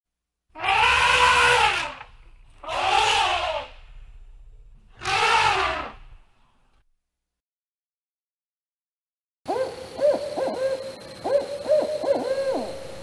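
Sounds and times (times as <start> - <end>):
elephant trumpeting: 0.5 - 4.0, 4.9 - 6.2.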